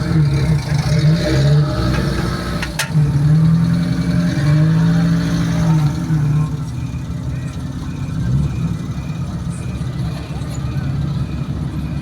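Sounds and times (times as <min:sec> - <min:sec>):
vehicle engine revving: 0:00.0 - 0:06.7.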